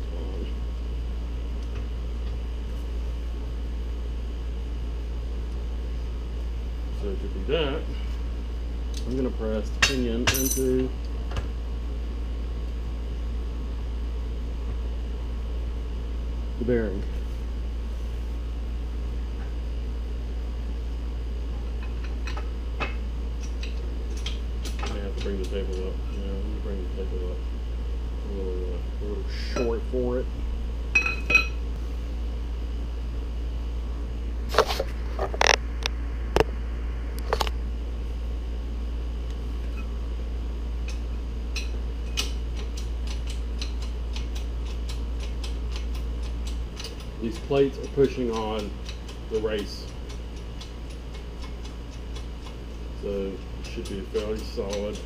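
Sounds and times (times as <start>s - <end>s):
low background hum: 0.0s - 55.0s
sharp metal clicks: 40.8s - 52.6s.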